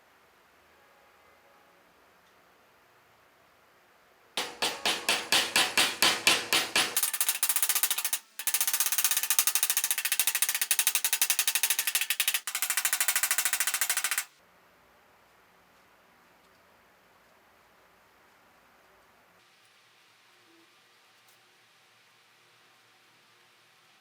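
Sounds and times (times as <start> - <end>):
rapid sharp strikes: 4.4 - 14.3.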